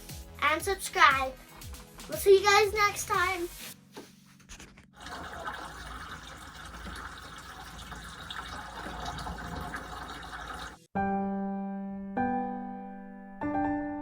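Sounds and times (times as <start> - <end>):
water running: 5.0 - 10.9
piano notes: 11.0 - 14.0.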